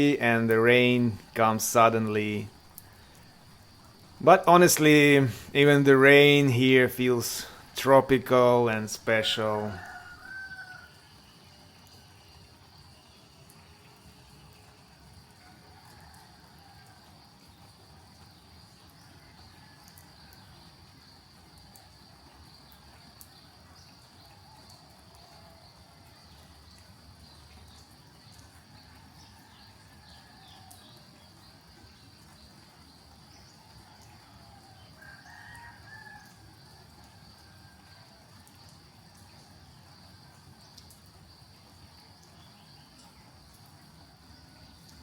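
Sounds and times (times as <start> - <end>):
faint rooster crowing: 9.4 - 12.4, 15.3 - 18.0, 19.0 - 20.7, 24.3 - 26.4, 28.7 - 31.4, 33.3 - 39.5.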